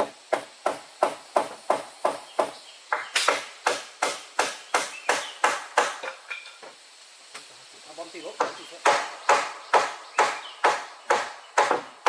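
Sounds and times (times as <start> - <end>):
rapid chopping with a blade: 0.0 - 6.0, 8.8 - 11.9.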